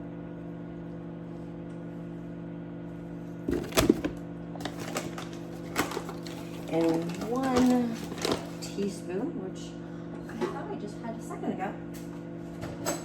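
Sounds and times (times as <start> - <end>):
microwave oven humming: 0.0 - 13.0
kitchen utensils clattering: 3.5 - 8.8.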